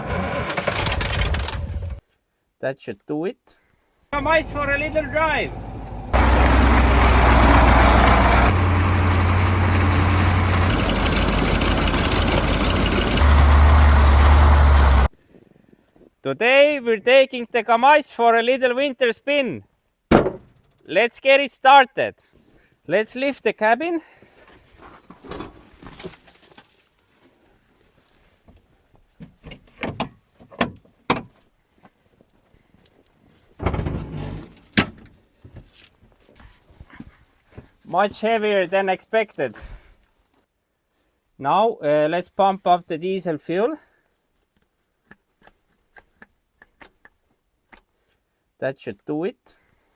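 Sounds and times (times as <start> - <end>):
truck diesel engine running: 4.2 - 15.1.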